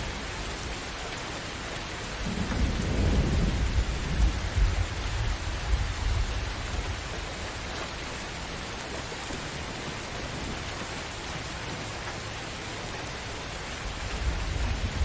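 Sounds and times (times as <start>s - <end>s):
heavy rain: 0.0s - 15.0s
thunder rumble: 2.2s - 7.4s, 14.0s - 15.0s.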